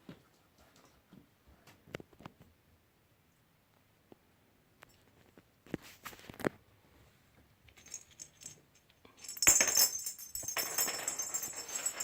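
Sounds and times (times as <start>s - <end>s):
bell toy jingling and rattling: 9.2s - 12.0s.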